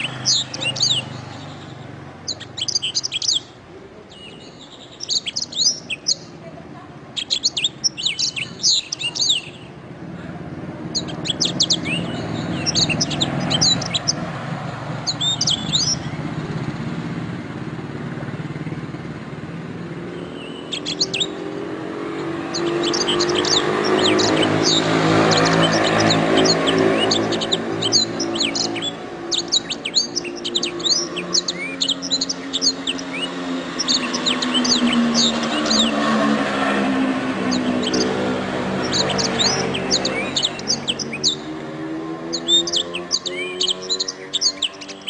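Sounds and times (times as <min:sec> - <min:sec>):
canary singing: 0:00.0 - 0:16.9, 0:18.6 - 0:45.0.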